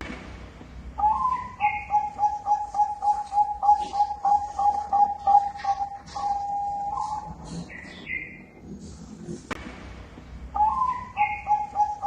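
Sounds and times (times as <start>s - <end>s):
dove cooing: 1.0s - 8.4s, 10.6s - 12.0s.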